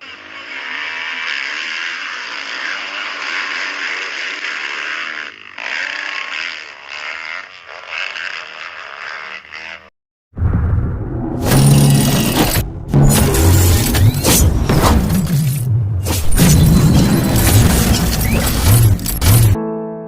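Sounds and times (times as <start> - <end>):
rushing noise: 10.4 - 19.5
sudden loud noise: 10.4 - 19.6
dirt bike engine revving: 11.2 - 19.6.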